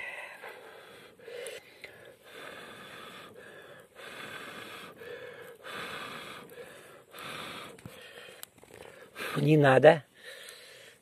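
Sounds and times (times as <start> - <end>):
person breathing: 0.0 - 9.4, 10.1 - 11.0.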